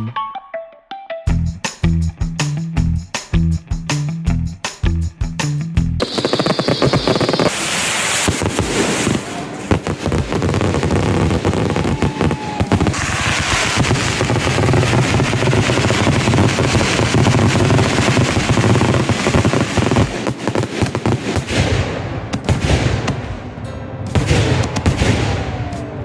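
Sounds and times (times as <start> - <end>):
fireworks bangs and crackles: 6.0 - 26.0.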